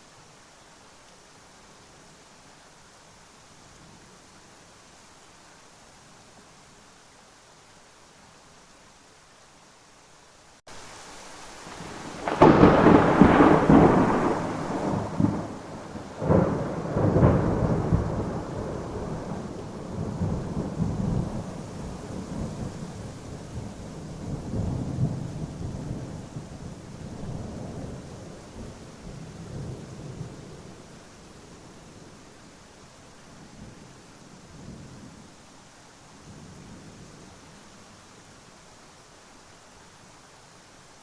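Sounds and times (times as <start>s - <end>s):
falling rain: 0.0s - 41.0s
thunderclaps and rolling rumble: 11.8s - 30.7s.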